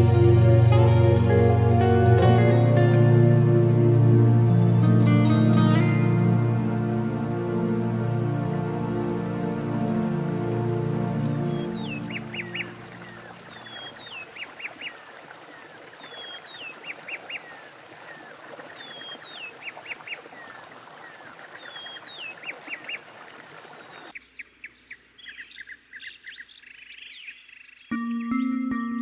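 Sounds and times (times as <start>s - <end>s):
birds calling: 11.3s - 28.5s.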